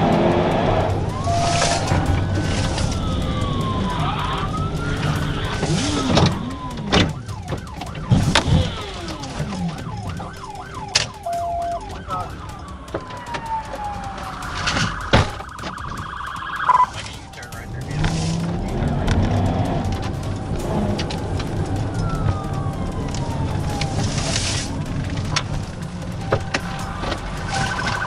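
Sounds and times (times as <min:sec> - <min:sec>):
police siren wailing and yelping: 0:00.0 - 0:28.0
vehicle engine and road noise: 0:00.0 - 0:28.0
short steady beep: 0:14.9 - 0:17.0.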